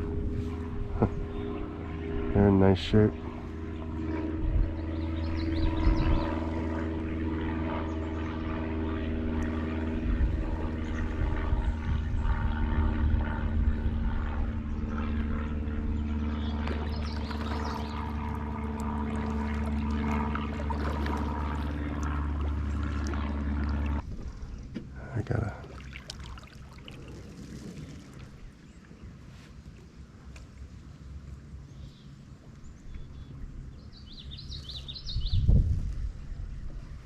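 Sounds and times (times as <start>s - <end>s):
motor running steadily: 0.0s - 37.0s
faint water splashing: 16.6s - 24.0s, 24.6s - 29.9s.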